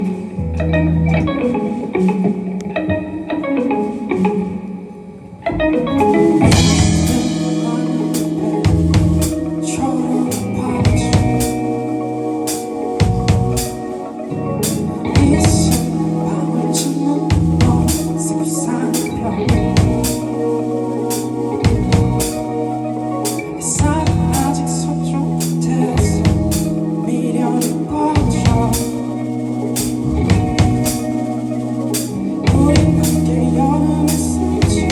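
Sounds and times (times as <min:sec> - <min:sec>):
bass: 0:00.0 - 0:01.6, 0:06.1 - 0:34.9
keyboard chords: 0:00.0 - 0:34.9
live band playing: 0:00.0 - 0:34.9
drum kit beat: 0:06.4 - 0:14.0, 0:14.6 - 0:16.1, 0:16.7 - 0:18.3, 0:18.9 - 0:24.7, 0:25.4 - 0:27.0, 0:27.6 - 0:33.3, 0:34.1 - 0:34.9.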